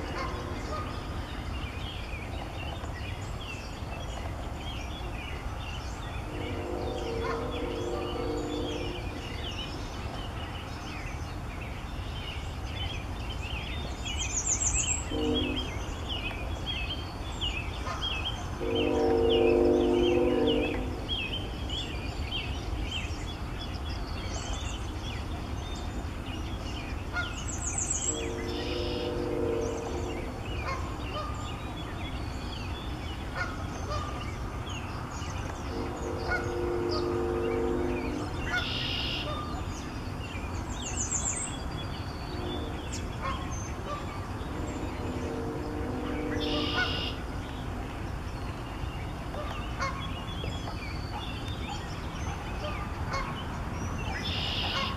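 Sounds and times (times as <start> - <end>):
steady low rumble: 0.0 - 14.1, 15.0 - 54.2
high songbird chirps: 0.0 - 54.9
bird honking call: 6.3 - 9.4, 15.0 - 15.9, 17.8 - 21.4, 28.1 - 31.5, 35.7 - 39.7, 42.3 - 47.3, 54.1 - 54.9.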